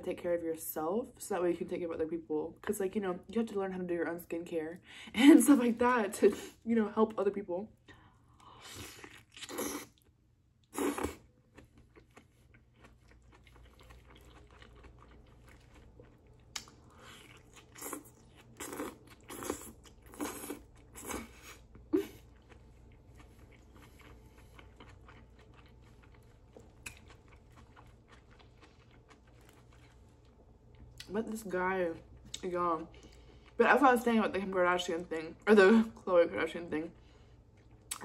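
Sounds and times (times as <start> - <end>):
biting and chewing food: 11.1 - 31.1.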